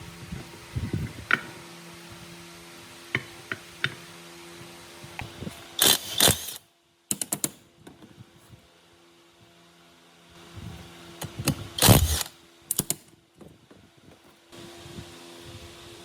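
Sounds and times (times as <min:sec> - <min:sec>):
metal mechanism clicking: 0:05.8 - 0:07.6, 0:11.2 - 0:13.0.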